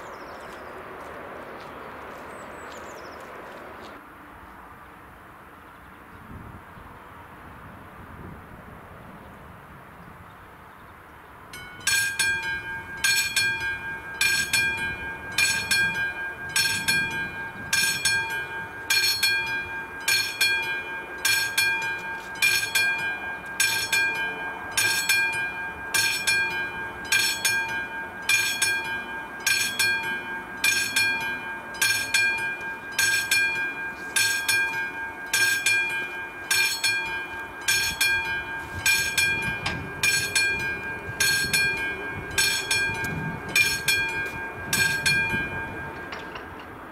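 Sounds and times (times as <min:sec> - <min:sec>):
level crossing warning bell: 0:11.5 - 0:46.9.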